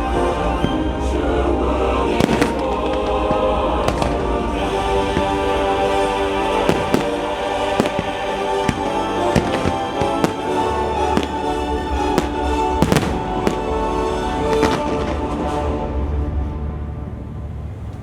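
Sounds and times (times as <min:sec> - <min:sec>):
musical soundtrack: 0:00.0 - 0:18.0
fireworks bursting: 0:02.0 - 0:15.6.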